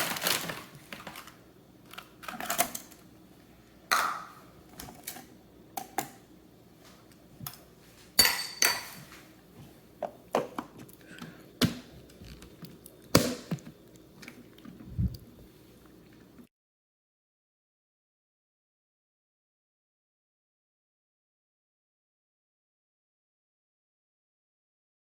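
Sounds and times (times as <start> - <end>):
dishes and utensils clinking: 8.2 - 9.1.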